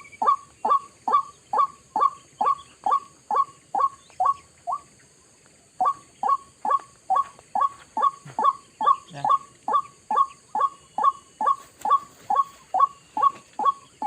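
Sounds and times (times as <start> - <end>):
bird calling sharp repeated notes: 0.0 - 4.9, 5.8 - 14.0.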